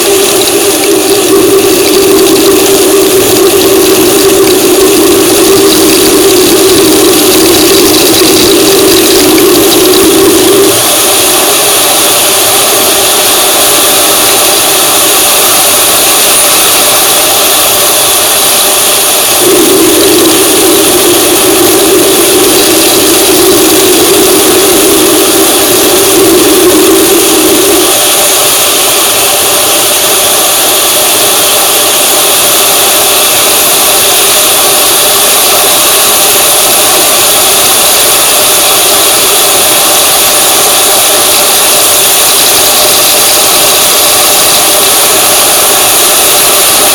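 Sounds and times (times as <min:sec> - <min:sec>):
vehicle engine running: 0:00.0 - 0:11.0, 0:19.3 - 0:28.4
low hum: 0:00.0 - 0:11.5, 0:19.2 - 0:28.6.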